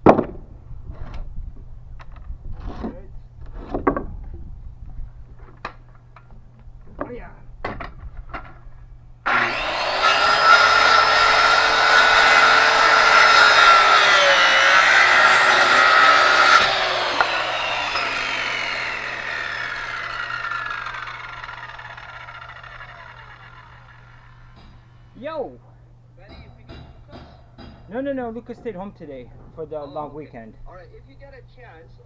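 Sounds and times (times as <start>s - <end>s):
saw blade winding down: 9.3s - 25.0s
circular saw cutting wood: 9.3s - 25.1s.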